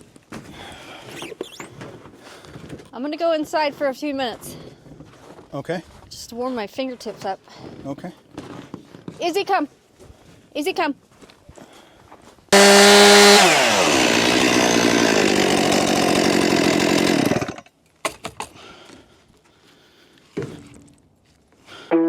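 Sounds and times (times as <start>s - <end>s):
chainsaw cutting wood: 12.6s - 18.5s.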